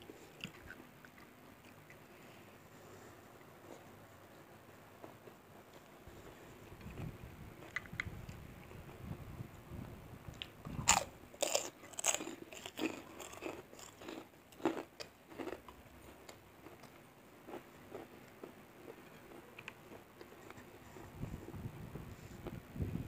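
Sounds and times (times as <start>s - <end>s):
chewing with light crackles: 0.0s - 9.0s, 10.3s - 22.6s
crunching a crisp cracker: 10.4s - 20.7s.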